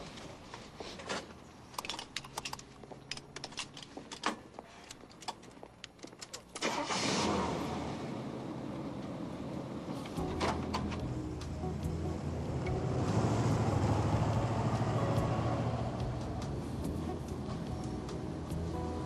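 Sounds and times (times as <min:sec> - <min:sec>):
keys jangling: 0:01.8 - 0:06.6
car engine starting and running: 0:06.5 - 0:19.0.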